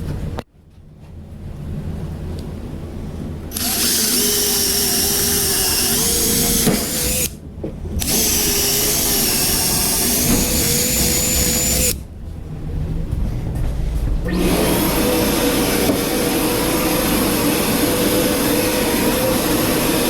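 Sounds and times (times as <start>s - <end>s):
electric drill running: 3.5s - 7.4s, 8.0s - 12.0s, 14.3s - 20.0s.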